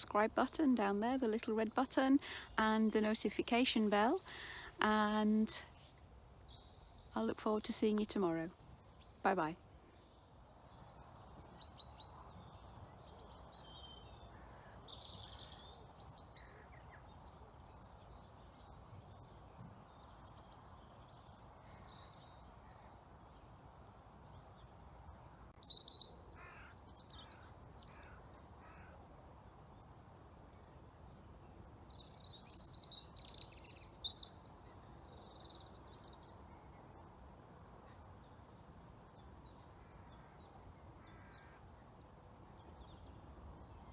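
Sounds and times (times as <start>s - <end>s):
faint steady hiss: 0.0s - 17.0s
bird calls: 31.9s - 35.7s.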